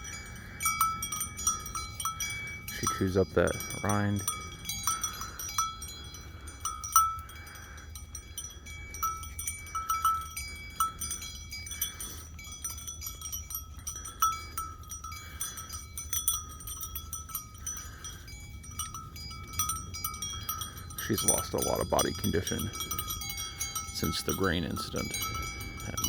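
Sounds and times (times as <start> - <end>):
livestock bell clanking: 0.0 - 26.0.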